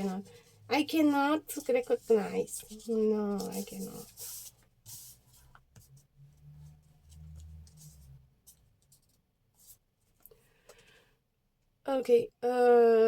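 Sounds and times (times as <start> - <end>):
paper rustling on tabletop: 0.0 - 6.0.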